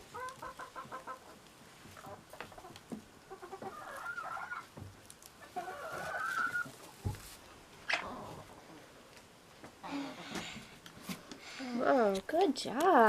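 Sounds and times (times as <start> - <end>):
hens clucking: 0.0 - 8.9
hen drawn-out calls: 3.3 - 4.7, 5.4 - 6.8.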